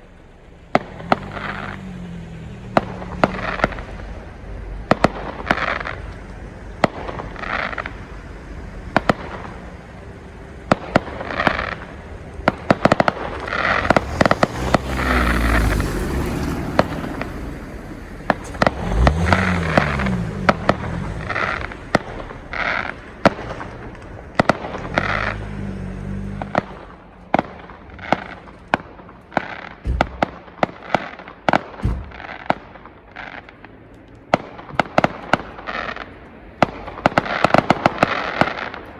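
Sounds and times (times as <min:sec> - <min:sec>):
fireworks cracking and popping: 0:00.0 - 0:38.9
deep firework booms: 0:00.7 - 0:01.8, 0:02.6 - 0:25.7, 0:26.4 - 0:33.0
hissing firework bursts: 0:00.7 - 0:25.7, 0:26.4 - 0:38.9.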